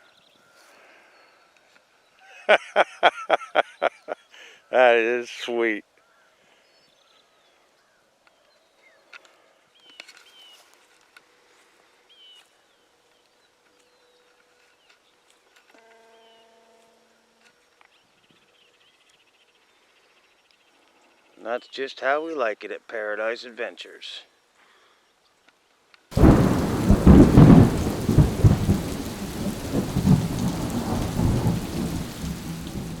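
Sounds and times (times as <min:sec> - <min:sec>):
steady rain: 0:26.1 - 0:33.0
thunder rumbling: 0:26.1 - 0:33.0.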